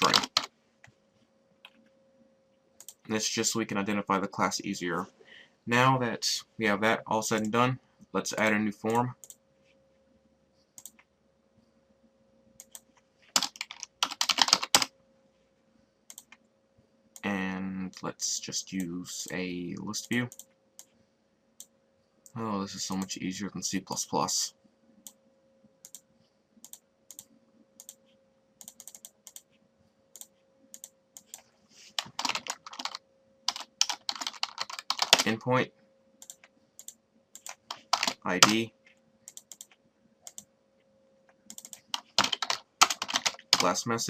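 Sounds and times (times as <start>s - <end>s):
computer keyboard typing: 0.0s - 0.5s, 12.6s - 14.9s, 28.6s - 29.5s, 30.2s - 35.4s, 36.2s - 38.6s, 39.2s - 40.5s, 41.4s - 43.8s
faint steady hum: 0.0s - 44.0s.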